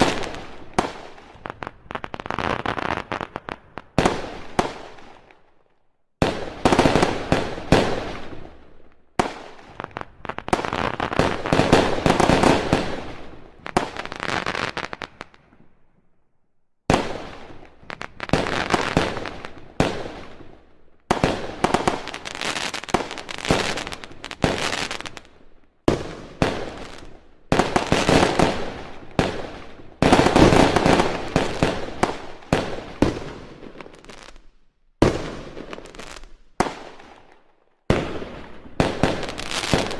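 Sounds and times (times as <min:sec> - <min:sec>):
fireworks bangs and crackling: 0:00.0 - 0:05.5, 0:06.2 - 0:15.8, 0:16.9 - 0:39.9.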